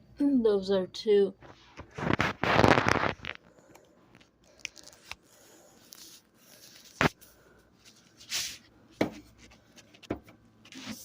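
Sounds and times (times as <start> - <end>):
packaging rustle: 1.8 - 3.4, 4.4 - 5.2.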